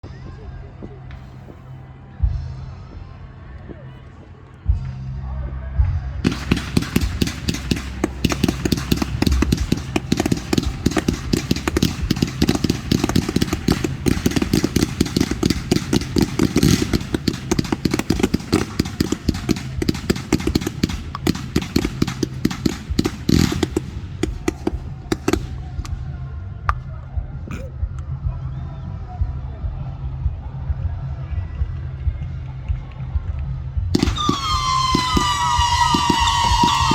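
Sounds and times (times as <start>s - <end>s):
fireworks bangs and crackles: 6.2s - 26.8s, 33.9s - 36.9s.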